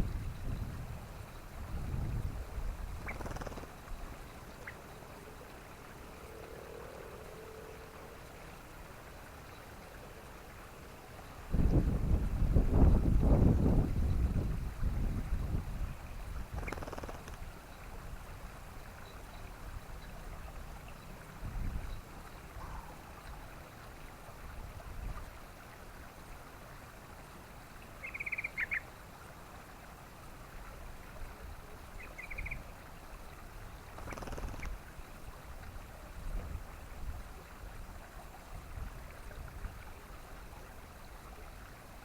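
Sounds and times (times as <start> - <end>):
bulbul chattering: 3.0 - 3.7, 16.6 - 17.3.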